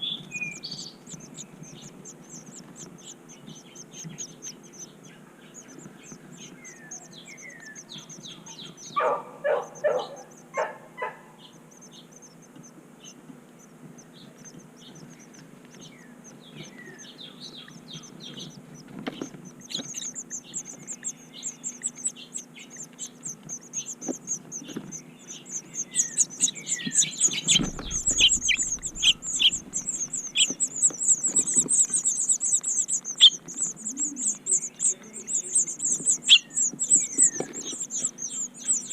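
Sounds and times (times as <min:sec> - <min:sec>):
small birds chirping: 0:00.0 - 0:38.9
fast high twittering: 0:19.7 - 0:38.9.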